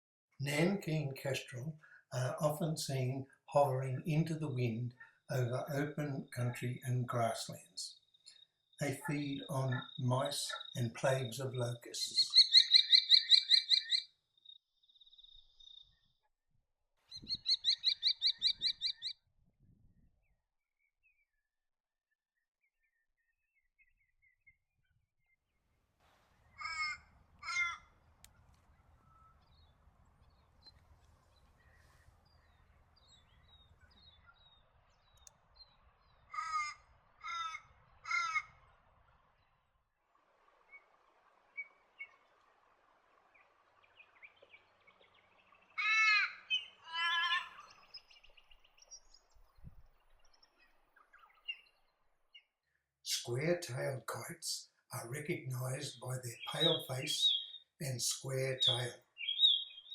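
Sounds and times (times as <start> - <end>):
bird calling harshly: 12.0 - 14.0, 17.1 - 19.1, 26.5 - 27.9, 36.3 - 38.6, 45.8 - 47.8, 55.6 - 59.9.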